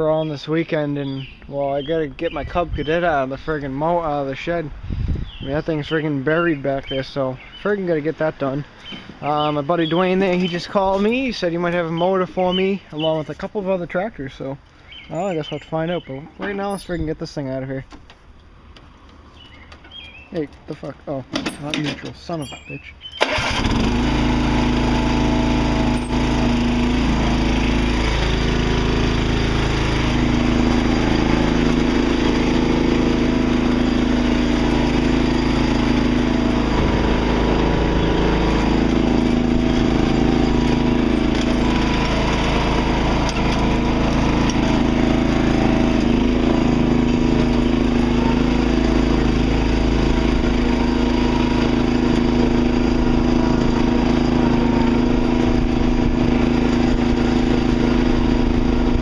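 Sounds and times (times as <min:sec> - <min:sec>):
lawn tractor engine running: 0:05.5 - 0:17.1, 0:17.8 - 0:59.0.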